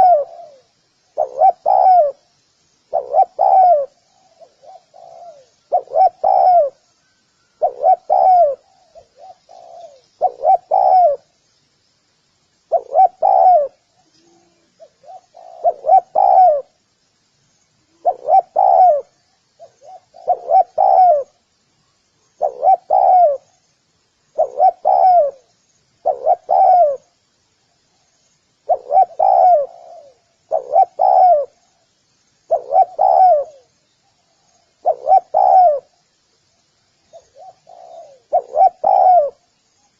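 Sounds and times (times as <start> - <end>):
dove cooing: 0.0 - 2.3, 2.9 - 11.3, 12.7 - 16.8, 17.8 - 21.4, 22.4 - 23.5, 24.3 - 27.1, 28.6 - 31.7, 32.5 - 36.0, 37.1 - 39.5
faint high chirps: 0.0 - 39.9.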